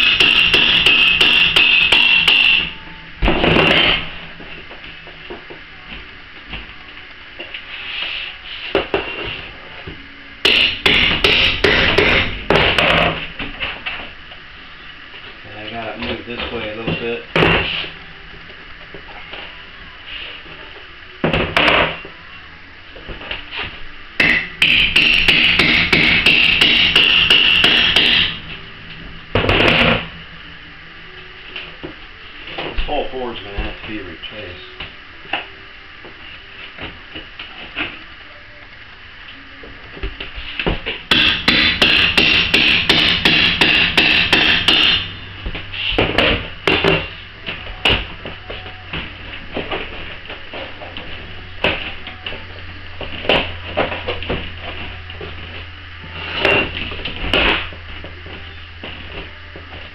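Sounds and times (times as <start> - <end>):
hammer striking metal tool: 0.0 - 2.7, 10.4 - 12.8, 24.2 - 28.4, 41.1 - 45.2.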